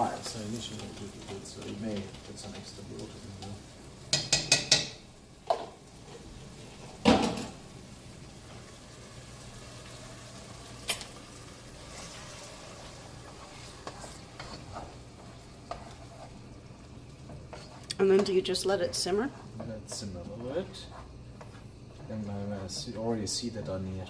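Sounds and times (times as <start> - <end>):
faint sizzle in pot: 0.0 - 24.0
utensil clanking against pot: 4.1 - 5.7.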